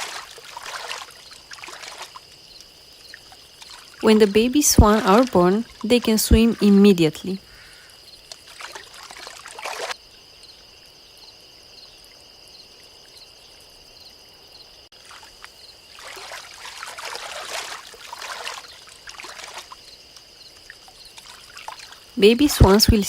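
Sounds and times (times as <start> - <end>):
water splashing and trickling: 0.0 - 10.0, 14.9 - 23.0.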